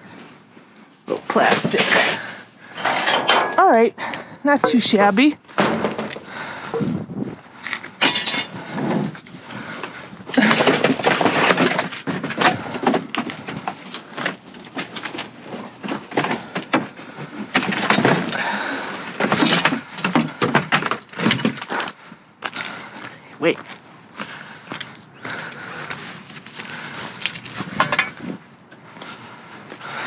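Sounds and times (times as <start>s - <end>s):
rustling and scraping: 0.0s - 23.0s, 25.3s - 30.0s
trash knocking and clattering: 1.3s - 3.8s, 4.6s - 7.0s, 8.0s - 9.3s, 10.2s - 22.0s, 26.6s - 28.4s.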